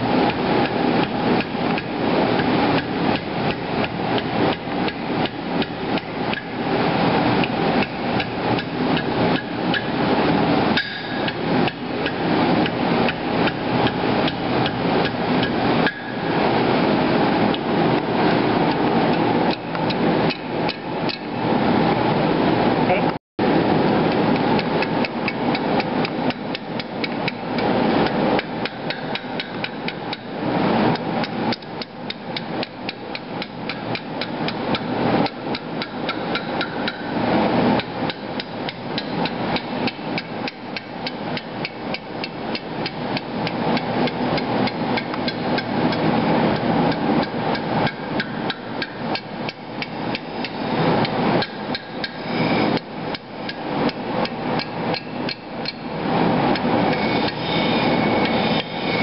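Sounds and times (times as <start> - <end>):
hammer striking steel: 10.8 - 11.8, 15.8 - 16.4.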